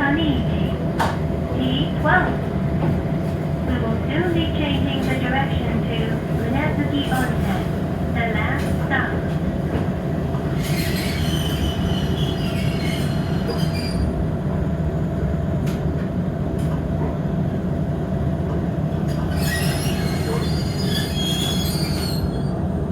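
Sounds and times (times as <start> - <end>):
train running rumble: 0.0 - 22.9
wheel squeal: 10.6 - 14.2, 19.1 - 22.5.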